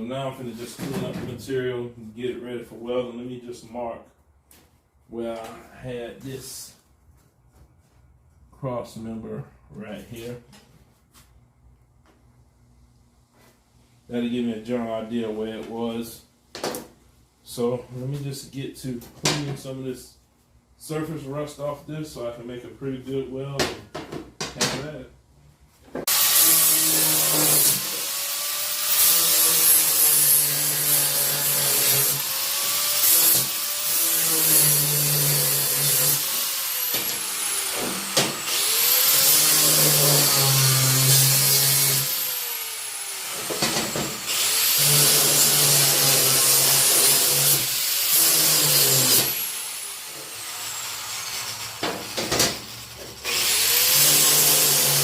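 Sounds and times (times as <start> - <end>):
angle grinder on steel: 26.1 - 55.0.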